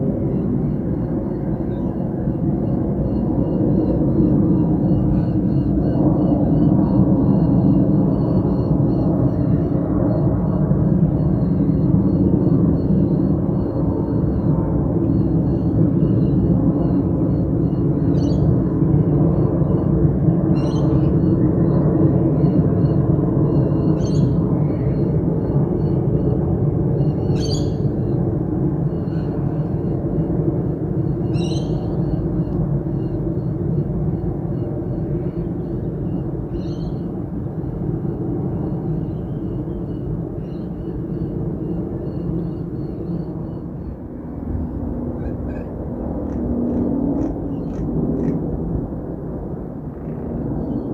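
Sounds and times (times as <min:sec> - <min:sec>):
jet airliner low rumble: 0:00.0 - 0:50.9
faint bird chirping: 0:11.1 - 0:19.9, 0:20.5 - 0:28.2, 0:31.0 - 0:44.3
bird calling: 0:17.9 - 0:18.6, 0:20.5 - 0:21.4, 0:23.6 - 0:25.1, 0:27.0 - 0:28.2, 0:31.2 - 0:33.2, 0:35.1 - 0:37.2, 0:45.1 - 0:48.4.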